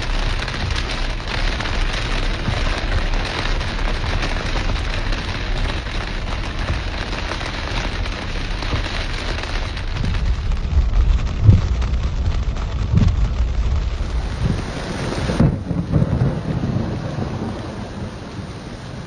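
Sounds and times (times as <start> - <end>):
deep low rumbles: 0.0 - 16.6
heavy rain falling: 0.0 - 19.0.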